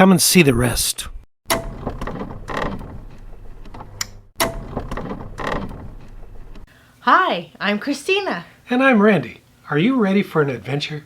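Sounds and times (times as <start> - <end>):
mechanical clattering and creaking: 1.5 - 6.7.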